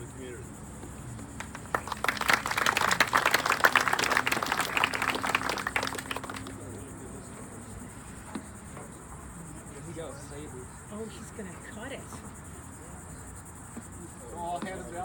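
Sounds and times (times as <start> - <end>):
insects droning: 0.0 - 15.0
crowd applauding: 1.2 - 6.8.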